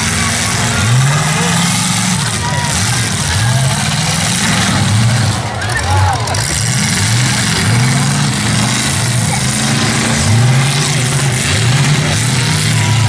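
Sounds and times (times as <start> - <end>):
car engines revving: 0.0 - 13.0
exhaust roar: 0.0 - 13.0.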